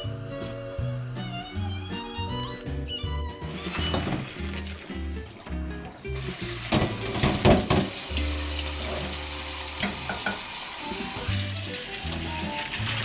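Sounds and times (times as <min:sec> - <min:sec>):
background music: 0:00.0 - 0:13.0
hissing kitchen noise: 0:03.4 - 0:13.0.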